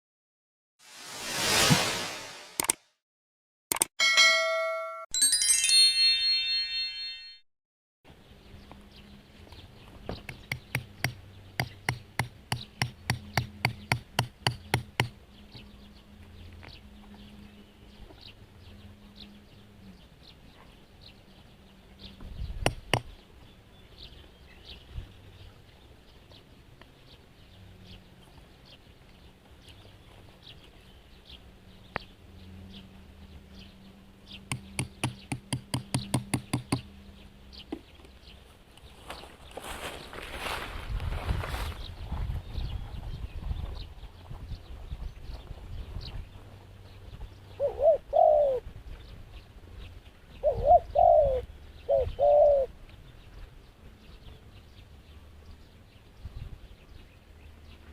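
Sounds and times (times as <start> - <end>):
sharp taps: 34.5 - 36.9
dove cooing: 47.6 - 48.6, 50.4 - 52.7.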